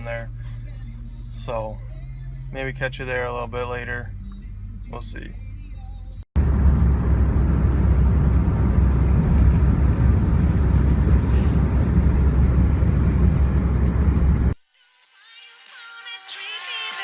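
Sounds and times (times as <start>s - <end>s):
vehicle rumble: 3.4s - 14.6s
road and wind noise hiss: 6.5s - 14.6s.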